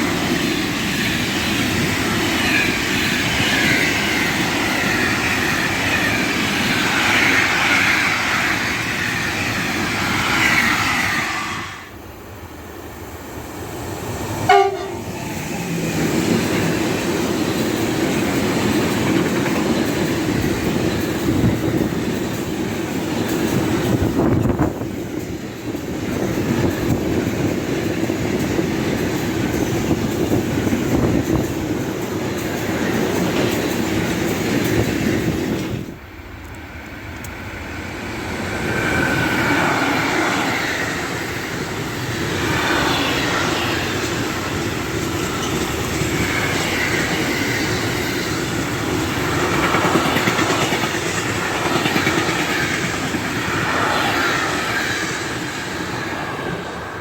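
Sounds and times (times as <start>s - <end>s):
high wavering train tones: 0.0s - 12.2s, 13.4s - 57.0s
train wheels clattering: 14.5s - 35.9s, 39.0s - 56.0s.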